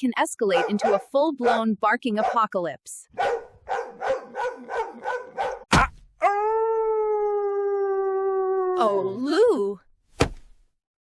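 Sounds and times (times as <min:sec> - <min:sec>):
dog barking rapidly: 0:00.5 - 0:02.5, 0:03.1 - 0:05.7
dog howling: 0:03.2 - 0:09.2
sharp knock: 0:05.7 - 0:06.1, 0:10.2 - 0:10.5.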